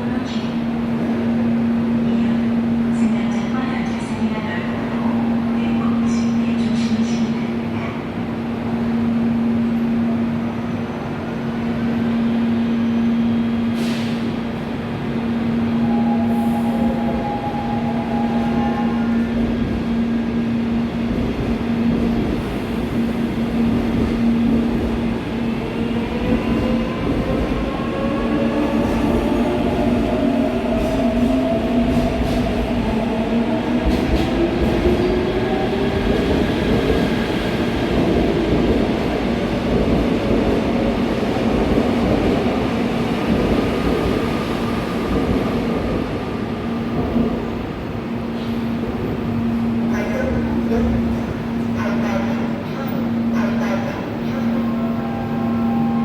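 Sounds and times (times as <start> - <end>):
electric train humming: 14.3 - 56.0.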